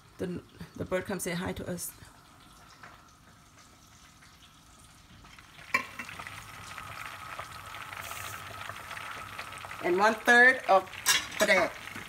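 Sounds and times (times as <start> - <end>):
paste sizzling in a pot: 3.6 - 12.0.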